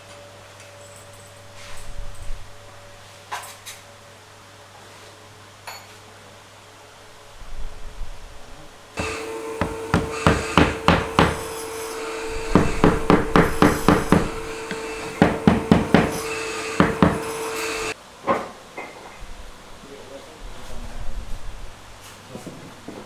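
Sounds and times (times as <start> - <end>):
hammer striking wood: 9.0 - 18.0.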